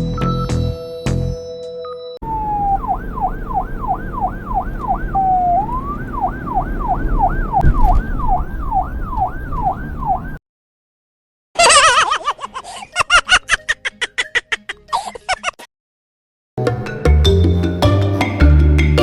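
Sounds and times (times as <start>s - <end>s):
music: 0.0s - 2.2s, 16.6s - 19.0s
electronic police siren yelp: 2.2s - 10.4s
low rumble: 2.4s - 9.8s.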